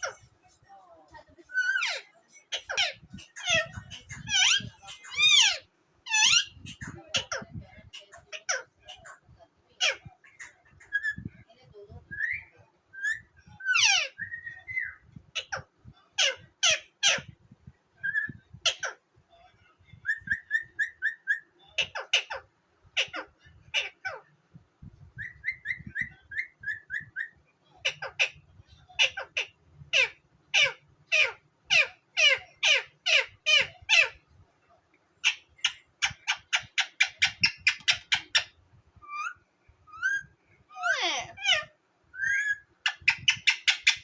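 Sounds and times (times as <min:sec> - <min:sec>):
parrot chirping and whistling: 0:20.0 - 0:21.5, 0:25.2 - 0:27.4, 0:41.5 - 0:44.0.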